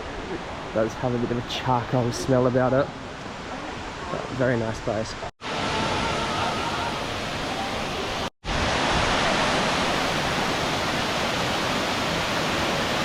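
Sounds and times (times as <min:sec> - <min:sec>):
waterfall rushing: 0:05.4 - 0:13.0.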